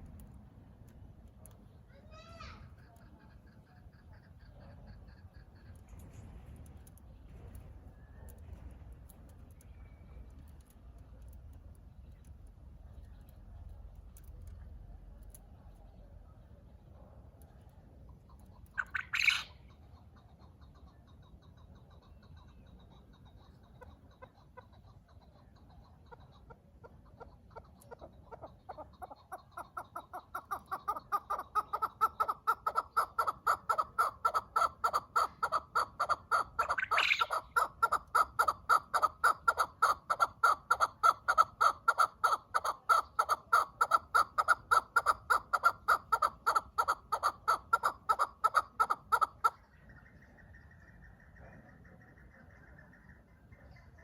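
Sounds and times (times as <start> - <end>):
partridge rapid clucking call: 2.8 - 6.2, 18.1 - 54.0.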